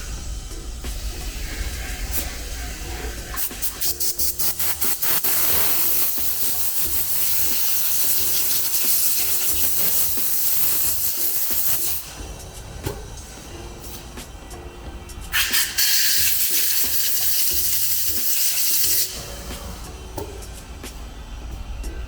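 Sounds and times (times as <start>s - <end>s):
compressed air hissing: 0.0s - 22.0s.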